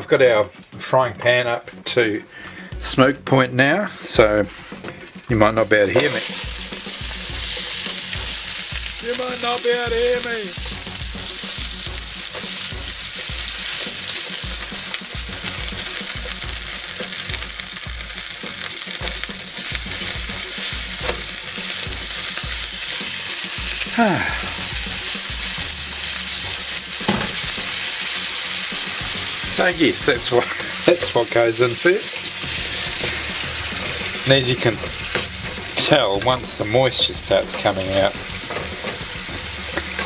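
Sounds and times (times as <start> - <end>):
food sizzling in a frying pan: 4.5 - 40.0
spatula scraping a pan: 30.2 - 31.2, 32.1 - 40.0.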